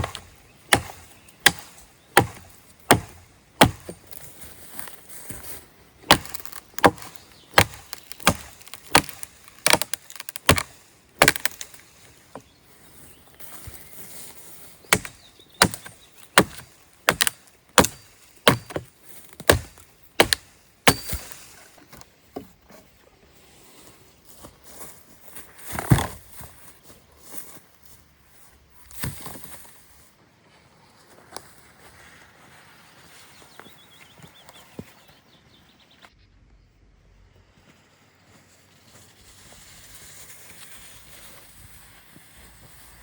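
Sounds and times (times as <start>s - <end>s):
wood being chopped: 0.0s - 4.9s, 6.0s - 12.4s, 14.9s - 21.6s, 25.7s - 26.3s.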